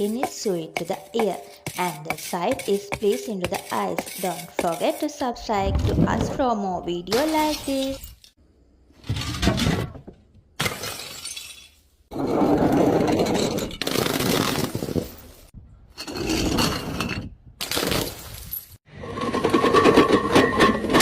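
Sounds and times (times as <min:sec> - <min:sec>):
glass bottles shattering: 0:07.2 - 0:08.4, 0:10.6 - 0:11.9, 0:17.6 - 0:18.8.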